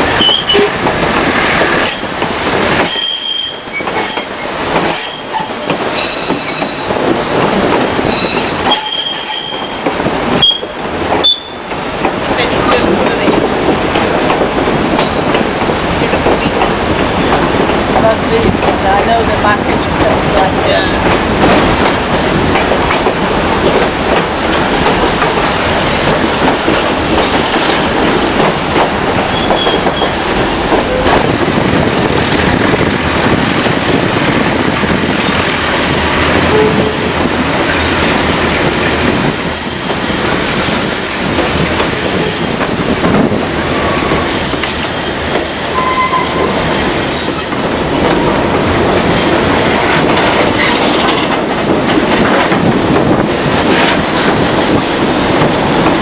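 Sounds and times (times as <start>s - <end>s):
wheels clacking over rail joints: 0.0s - 33.4s, 35.5s - 56.0s
train wheels rumbling on rails: 0.0s - 56.0s
wheel squeals: 0.2s - 0.7s, 8.1s - 9.8s, 15.8s - 17.3s, 29.3s - 30.2s.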